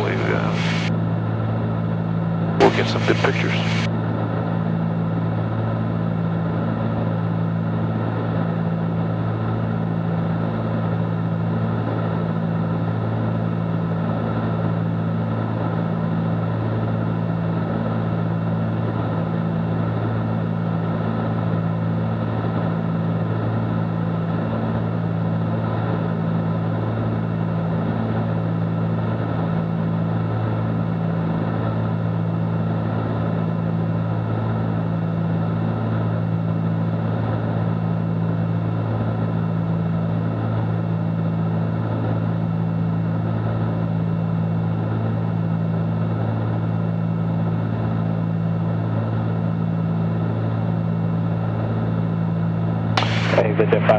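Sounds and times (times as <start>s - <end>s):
airplane cabin drone: 0.0s - 53.9s.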